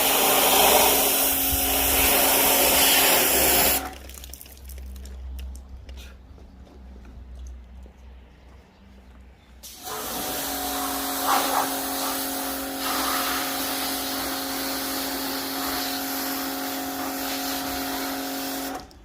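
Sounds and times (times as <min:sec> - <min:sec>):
pressure washer motor whine: 0:00.0 - 0:03.9, 0:09.7 - 0:18.9
spray hissing: 0:00.0 - 0:03.9, 0:09.6 - 0:18.8.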